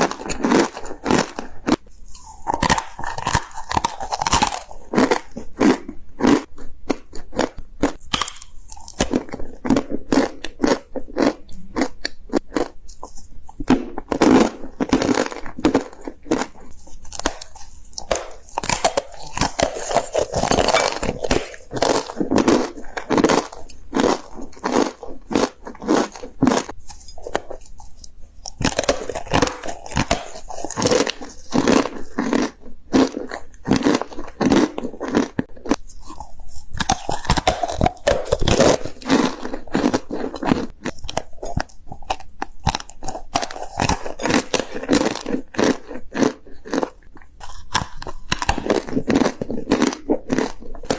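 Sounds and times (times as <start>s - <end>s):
crisp chewing crunches: 0.0s - 50.9s.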